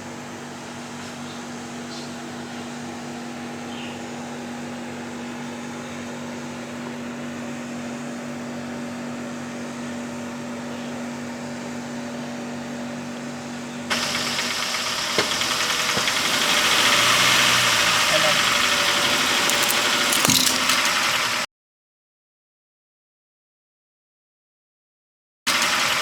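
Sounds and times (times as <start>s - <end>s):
car engine idling: 13.9s - 21.4s
sharp clicks: 19.5s - 20.9s.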